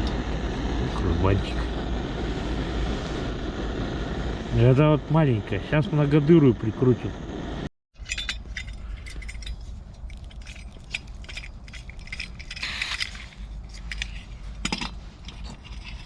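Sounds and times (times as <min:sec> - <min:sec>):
gas hiss: 0:00.0 - 0:07.7
metal clicks and scrapes: 0:08.0 - 0:16.0.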